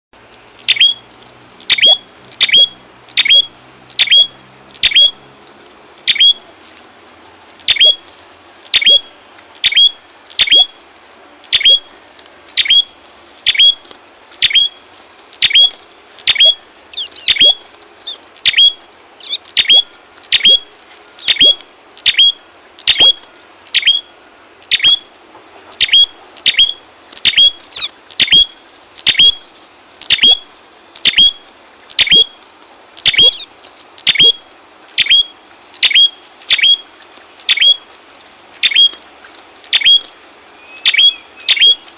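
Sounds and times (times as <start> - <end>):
bird chirping call: 0.6 - 5.2, 6.0 - 6.4, 7.6 - 10.8, 11.4 - 11.9, 12.5 - 25.1, 25.7 - 32.4, 33.0 - 37.8, 38.6 - 39.0, 39.6 - 41.9
fast bird chatter: 15.3 - 20.6, 25.7 - 30.4, 33.0 - 34.3.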